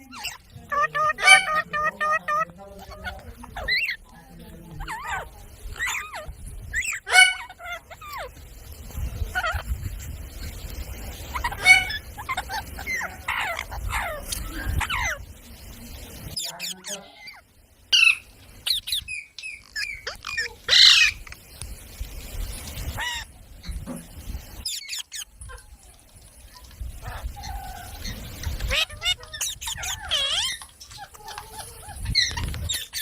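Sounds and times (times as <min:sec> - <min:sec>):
parrot screeching: 0:00.0 - 0:04.0, 0:04.8 - 0:08.3, 0:11.3 - 0:15.2, 0:19.7 - 0:21.2, 0:28.6 - 0:33.0
parrot squawking: 0:00.0 - 0:04.1, 0:04.8 - 0:08.3, 0:09.3 - 0:09.7, 0:11.3 - 0:15.2, 0:16.3 - 0:17.4, 0:18.0 - 0:21.3, 0:24.6 - 0:25.6, 0:27.0 - 0:33.0.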